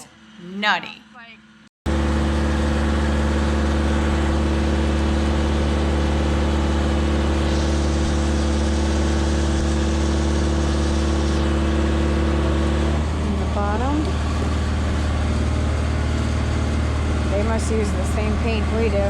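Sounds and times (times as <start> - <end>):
engine humming steadily: 1.9 - 19.0.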